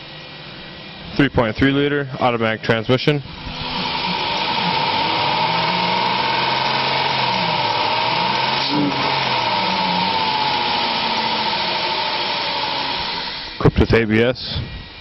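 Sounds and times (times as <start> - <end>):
steady whine: 0.0 - 15.0
car engine running: 3.3 - 13.6.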